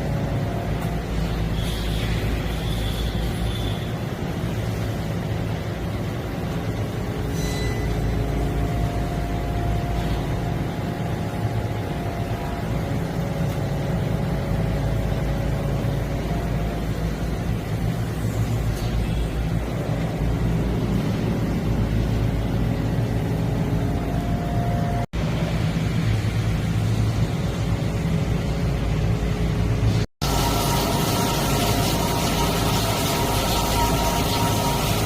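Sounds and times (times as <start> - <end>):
machine tool motor hum: 30.2 - 35.0.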